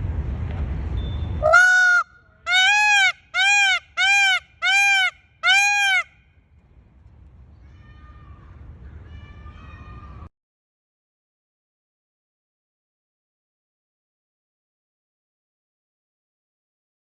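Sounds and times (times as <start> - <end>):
peacock honking calls: 1.4 - 6.2.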